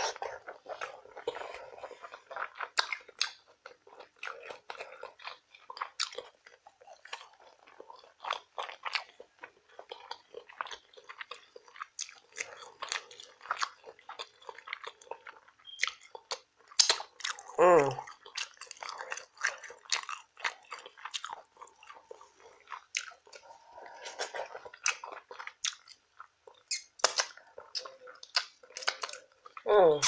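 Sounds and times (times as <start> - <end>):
food crunching: 0.0 - 30.0
wet chewing and lip-smacking: 0.0 - 30.0
person humming mmm: 17.6 - 18.0.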